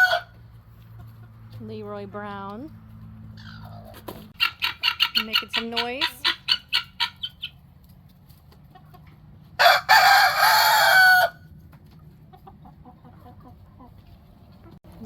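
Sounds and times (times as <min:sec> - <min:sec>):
rooster crowing: 0:00.0 - 0:00.3, 0:09.6 - 0:11.4
chickens clucking: 0:00.0 - 0:15.0.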